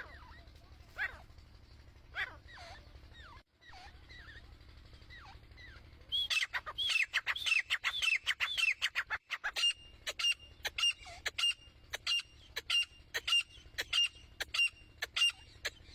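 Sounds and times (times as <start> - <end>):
francolin calling: 5.1 - 15.9.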